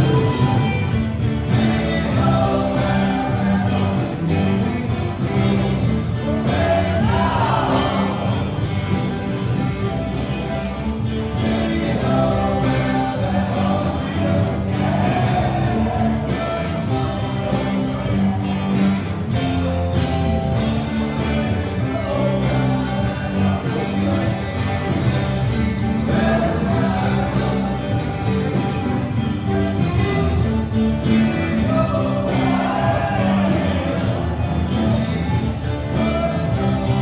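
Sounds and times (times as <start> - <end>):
band playing with singer: 0.0 - 37.0
drums beating: 0.0 - 37.0.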